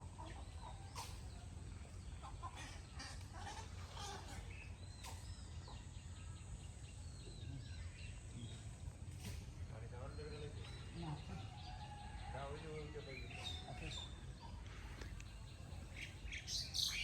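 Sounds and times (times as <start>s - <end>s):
bird chirps: 4.4s - 17.0s.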